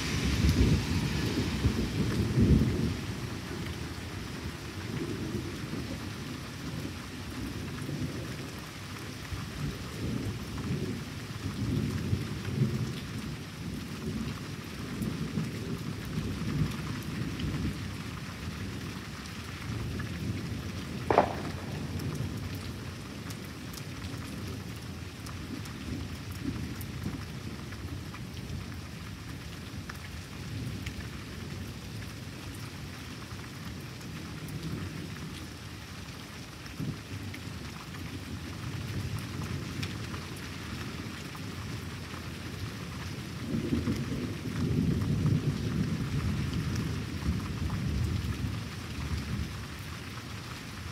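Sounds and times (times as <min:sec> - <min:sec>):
thunder rumbling: 0:00.0 - 0:06.0, 0:21.0 - 0:23.2
steady rain falling: 0:00.0 - 0:50.9
sharp thunder crack: 0:21.1 - 0:22.8.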